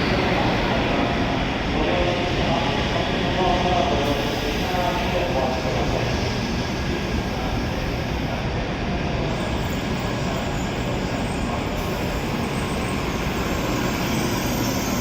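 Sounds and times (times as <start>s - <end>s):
train running noise: 0.0s - 15.0s.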